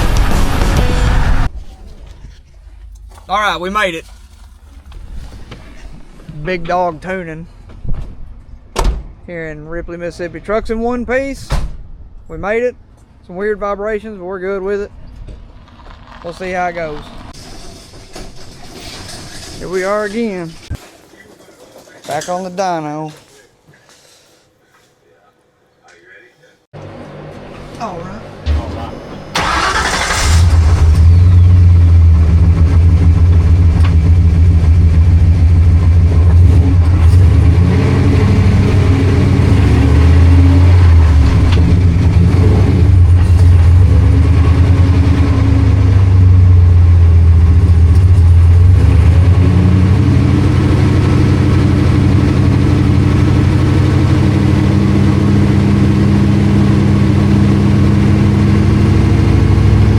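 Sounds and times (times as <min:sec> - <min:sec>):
truck engine running loud: 0:26.8 - 0:59.9.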